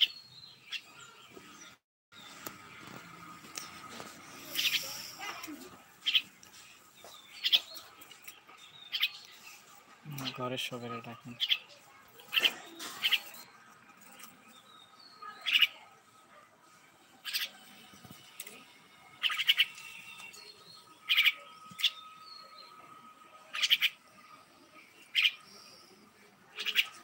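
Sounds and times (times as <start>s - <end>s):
pet bird chirping: 4.4s - 6.4s, 7.0s - 9.4s, 11.4s - 13.4s, 14.2s - 15.9s, 17.2s - 17.6s, 19.2s - 22.5s, 23.5s - 24.0s, 25.1s - 25.6s, 26.5s - 27.0s.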